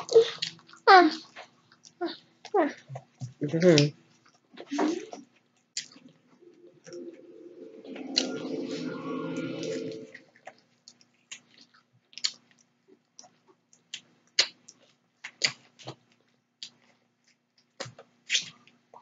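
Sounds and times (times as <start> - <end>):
humming sound: 6.2 - 10.5
chewing and crunching food: 11.2 - 19.0.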